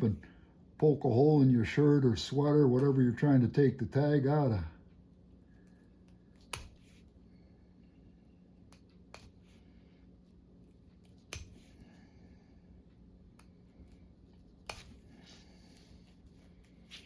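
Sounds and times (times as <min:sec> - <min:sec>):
faint steady hum: 0:00.0 - 0:17.0
knife cutting thread stitches: 0:06.1 - 0:07.0, 0:11.0 - 0:11.8, 0:14.4 - 0:15.1.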